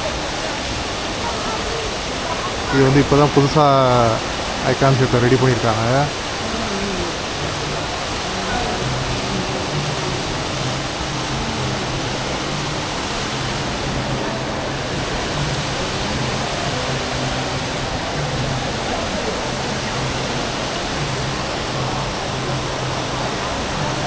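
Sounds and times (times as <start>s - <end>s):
indoor waterfall rushing splash: 0.0s - 24.0s.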